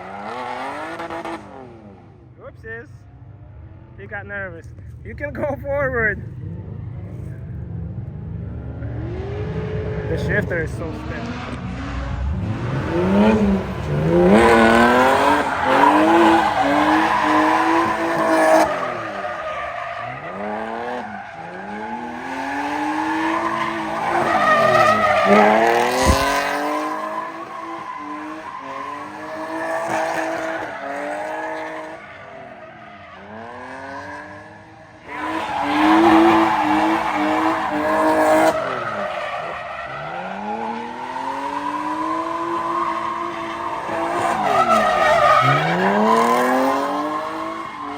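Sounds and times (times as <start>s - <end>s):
car engines revving: 0.0s - 47.9s
tyres sliding: 12.2s - 32.1s.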